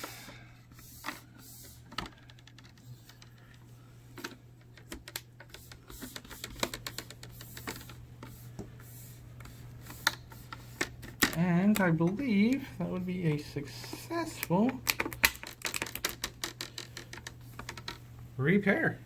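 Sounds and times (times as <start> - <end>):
plastic clips snapping in: 14.4 - 17.8.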